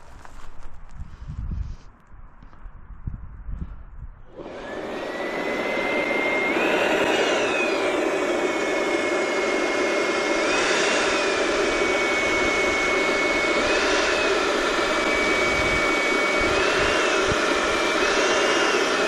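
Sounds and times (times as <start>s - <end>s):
motor whine: 4.2s - 19.0s.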